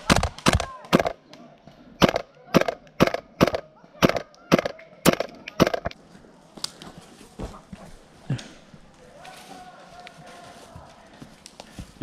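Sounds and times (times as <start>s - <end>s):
airsoft gun shots: 0.0s - 1.2s, 2.0s - 5.9s.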